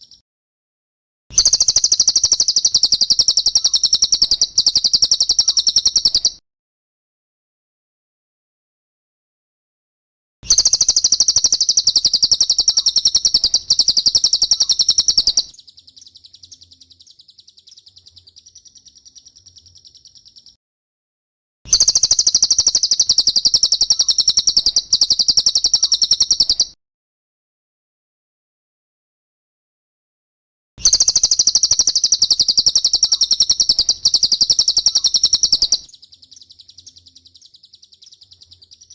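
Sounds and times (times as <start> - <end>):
rapid high-pitched bird trilling: 0.0 - 0.2, 1.3 - 6.4, 10.5 - 20.6, 21.7 - 26.8, 30.8 - 38.9
soft high bird twittering: 1.4 - 6.4, 10.5 - 20.6, 21.7 - 26.8, 30.8 - 38.9.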